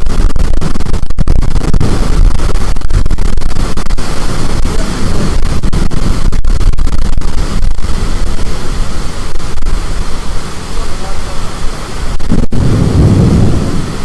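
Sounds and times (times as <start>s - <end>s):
storm wind buffeting microphone: 0.0s - 14.0s.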